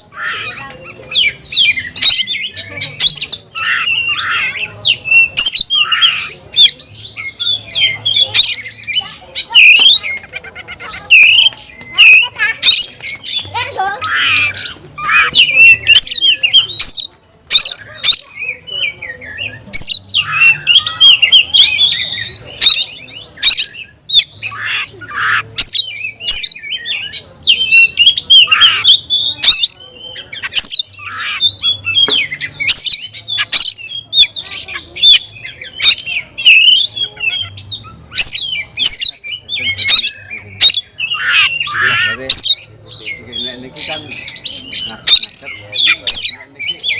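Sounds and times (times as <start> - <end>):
bird singing whistles and rasps: 0.0 - 46.9.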